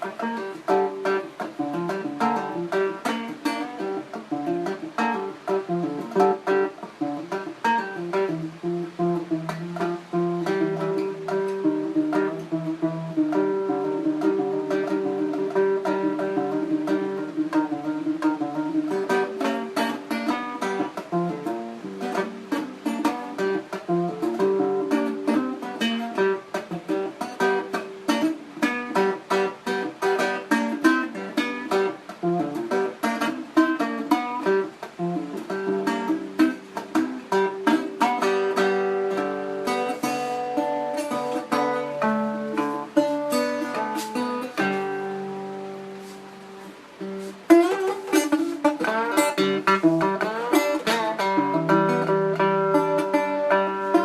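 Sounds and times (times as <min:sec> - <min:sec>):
plucked string instrument music: 0:00.0 - 0:54.0.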